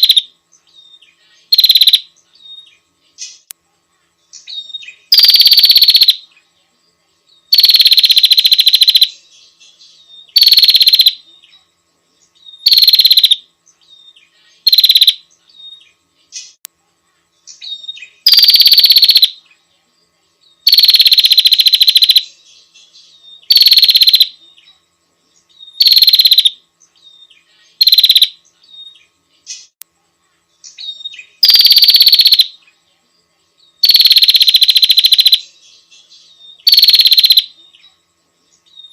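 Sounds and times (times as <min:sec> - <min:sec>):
bird high trilled call: 0:00.0 - 0:02.7, 0:04.4 - 0:06.2, 0:10.2 - 0:11.2, 0:12.4 - 0:13.4, 0:14.0 - 0:15.8, 0:17.5 - 0:19.4, 0:23.3 - 0:24.4, 0:25.6 - 0:29.7, 0:30.7 - 0:32.6, 0:33.8 - 0:35.4, 0:36.3 - 0:37.5.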